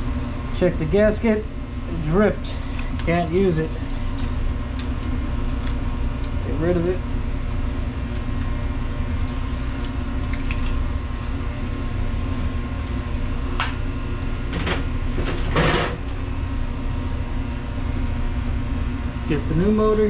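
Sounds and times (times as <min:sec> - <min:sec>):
low machinery hum: 0:00.0 - 0:20.0.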